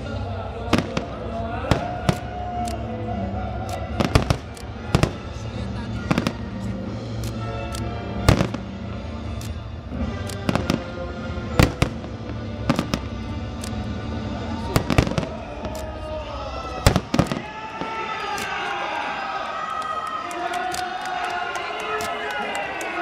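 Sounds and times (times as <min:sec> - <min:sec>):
music playing: 0:00.0 - 0:23.0
fireworks bangs: 0:00.6 - 0:02.7, 0:03.9 - 0:06.7, 0:08.2 - 0:09.0, 0:09.9 - 0:13.8, 0:14.6 - 0:19.2.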